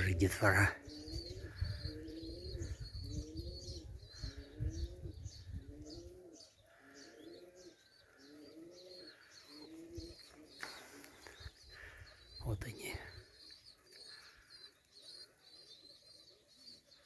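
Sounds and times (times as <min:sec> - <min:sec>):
pigeons cooing: 0:00.0 - 0:17.0
small bird chirping: 0:00.0 - 0:17.0
wind rumble on microphone: 0:01.0 - 0:06.2.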